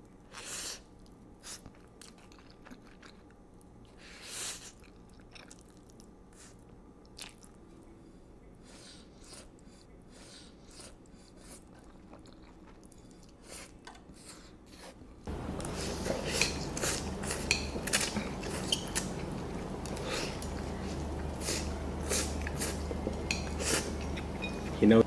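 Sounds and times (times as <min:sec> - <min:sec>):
chewing noodles: 0:00.2 - 0:08.0, 0:08.7 - 0:24.8
cutlery clinking against a bowl: 0:16.2 - 0:19.1, 0:23.1 - 0:24.8.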